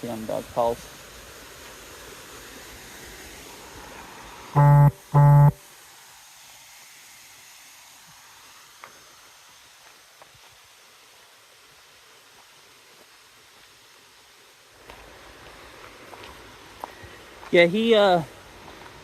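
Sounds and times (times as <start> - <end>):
steady background hiss: 0.0 - 19.0
low electronic buzz-beeps: 4.6 - 5.6.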